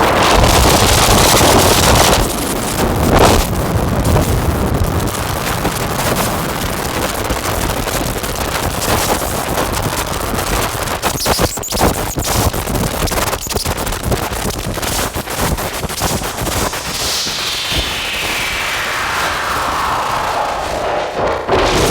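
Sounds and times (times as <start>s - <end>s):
distorted synthesizer noise: 15.9s - 21.9s.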